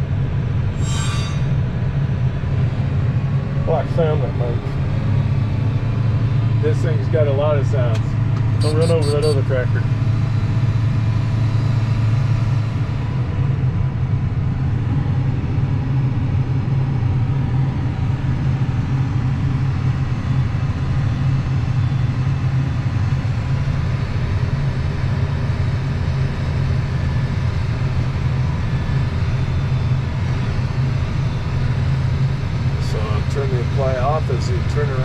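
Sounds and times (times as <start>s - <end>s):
tractor engine droning: 0.0s - 20.9s.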